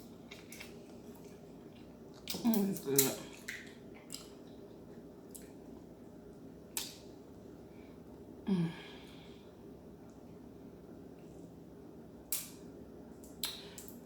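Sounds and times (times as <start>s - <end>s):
low room hum: 0.0s - 14.0s
person humming mm: 8.5s - 9.1s.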